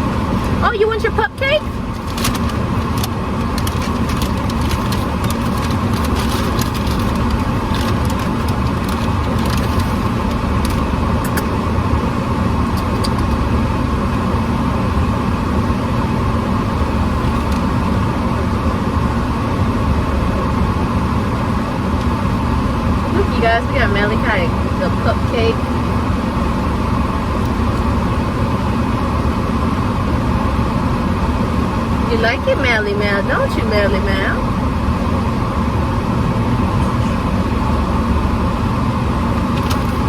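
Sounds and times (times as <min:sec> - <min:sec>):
car engine low rumble: 0:00.0 - 0:40.0
small clicks and rustles: 0:01.9 - 0:11.5.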